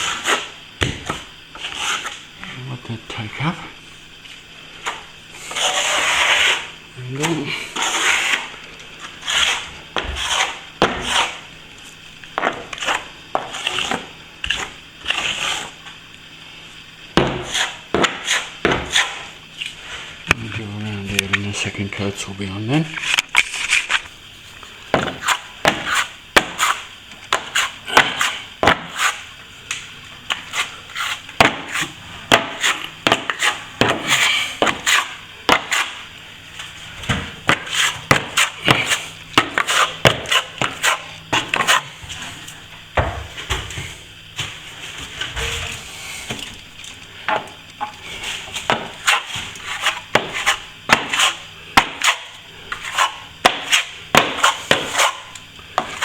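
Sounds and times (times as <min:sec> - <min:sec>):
trowel scraping plaster: 0:00.0 - 0:02.2, 0:04.8 - 0:11.5, 0:12.4 - 0:15.8, 0:17.2 - 0:20.1, 0:25.0 - 0:29.3, 0:30.3 - 0:42.6, 0:47.9 - 0:56.0
trowel tapping and clicking: 0:48.7 - 0:55.2.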